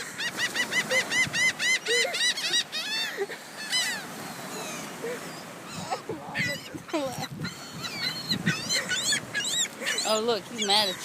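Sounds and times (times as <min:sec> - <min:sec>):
gulls calling: 0:00.0 - 0:11.0.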